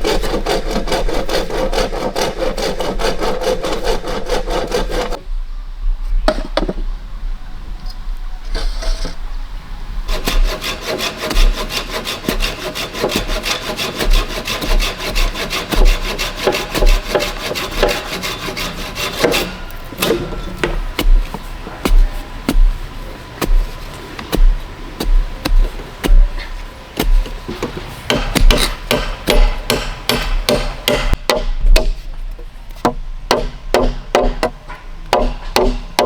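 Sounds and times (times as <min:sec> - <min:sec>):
hand saw cutting wood: 0:00.0 - 0:05.2, 0:10.1 - 0:22.7, 0:23.4 - 0:31.2
sharp knocks: 0:27.0 - 0:32.0.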